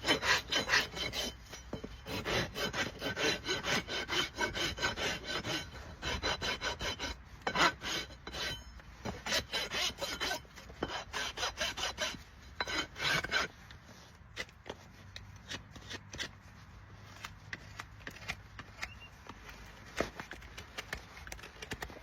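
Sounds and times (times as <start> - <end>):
rasp filing a hoof: 0.0 - 22.0
light scrapes and clicks: 13.2 - 22.0.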